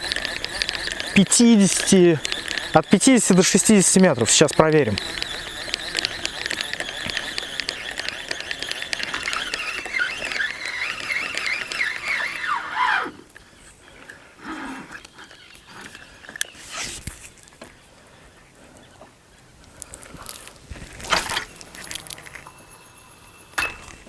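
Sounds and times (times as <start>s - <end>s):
fishing line whining off reel: 0.0s - 13.4s, 14.8s - 17.5s.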